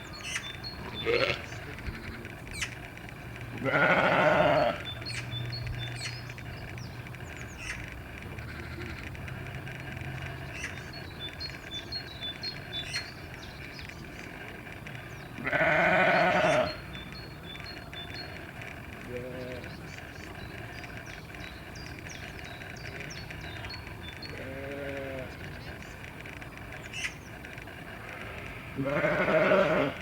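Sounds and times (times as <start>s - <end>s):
livestock bleating: 0.8s - 2.4s, 3.5s - 4.9s, 8.3s - 9.0s, 15.4s - 16.8s, 24.3s - 25.4s, 28.7s - 30.0s.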